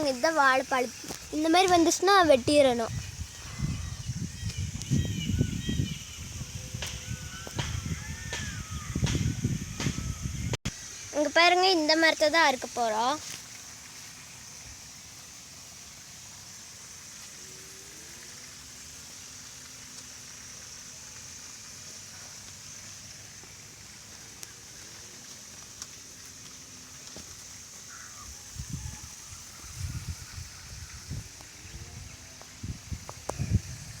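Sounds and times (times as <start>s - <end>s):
constant high hiss: 0.0s - 34.0s.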